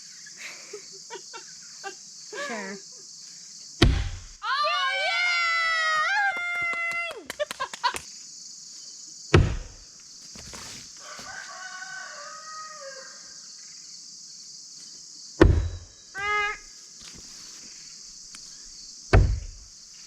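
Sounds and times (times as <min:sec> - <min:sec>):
steady high hiss: 0:00.0 - 0:05.6
blades thudding into wooden target: 0:03.8 - 0:04.4, 0:09.3 - 0:09.8, 0:15.4 - 0:15.9, 0:19.1 - 0:19.6
rooster crowing: 0:11.0 - 0:13.5.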